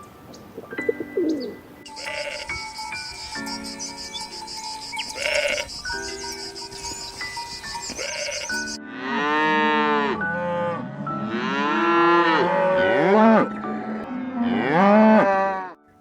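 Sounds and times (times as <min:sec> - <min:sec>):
cattle mooing: 0:01.9 - 0:02.8, 0:05.0 - 0:05.8, 0:07.9 - 0:15.8.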